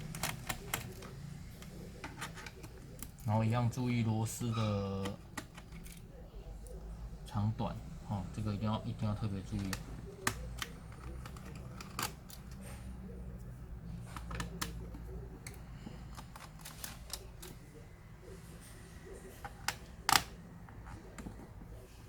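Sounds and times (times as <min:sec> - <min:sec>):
plastic parts clicking and knocking: 0:00.0 - 0:03.3, 0:04.8 - 0:06.0, 0:09.1 - 0:12.7, 0:14.0 - 0:17.6, 0:19.3 - 0:21.7.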